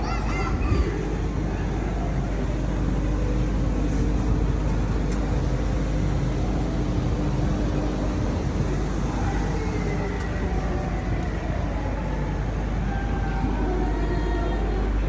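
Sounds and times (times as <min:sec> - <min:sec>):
road traffic rumble: 0:00.0 - 0:15.0
vehicle engine running: 0:01.1 - 0:12.9.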